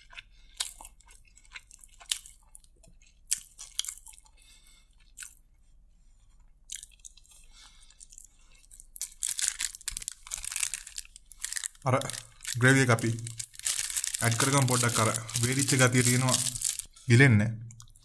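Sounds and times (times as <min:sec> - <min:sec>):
chewing fried rice: 0:00.0 - 0:17.0
small crunches: 0:06.7 - 0:17.0.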